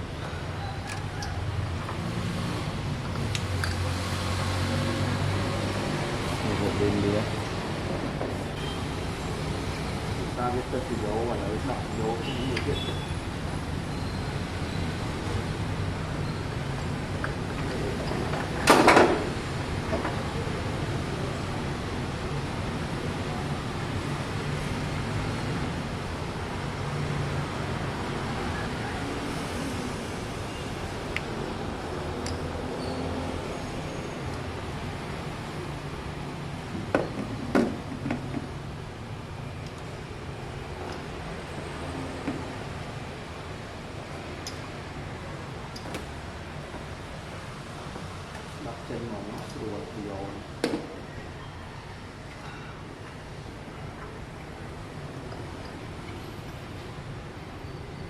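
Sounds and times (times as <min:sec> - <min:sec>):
tools clinking and knocking: 0:03.0 - 0:03.9.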